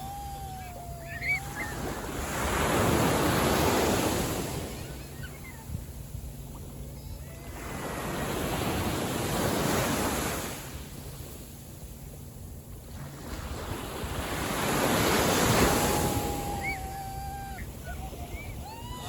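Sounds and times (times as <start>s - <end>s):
wind on microphone: 0.0s - 11.6s, 12.4s - 19.0s
small waves washing onto beach: 0.0s - 19.0s.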